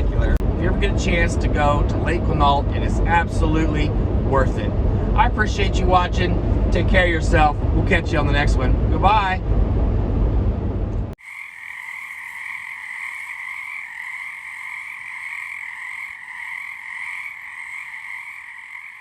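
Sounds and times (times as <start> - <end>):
low rumble: 0.0 - 11.2
chorus of frogs calling: 11.2 - 19.0.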